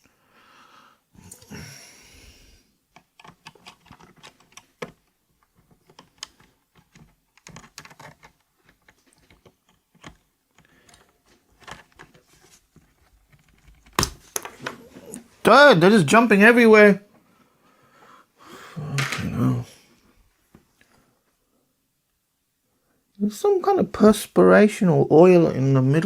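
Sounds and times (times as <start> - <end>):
small plastic keyboard clicks: 2.9 - 12.2.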